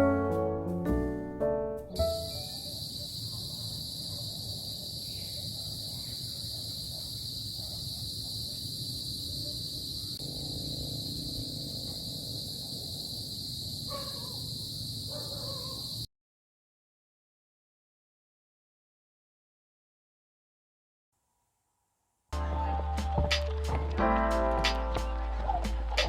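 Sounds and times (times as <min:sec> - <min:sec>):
insects chirring: 0:02.0 - 0:16.1.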